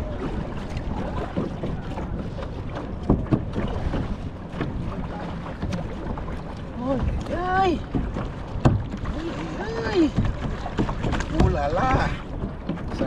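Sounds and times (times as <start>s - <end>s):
water noise: 0.0s - 13.0s.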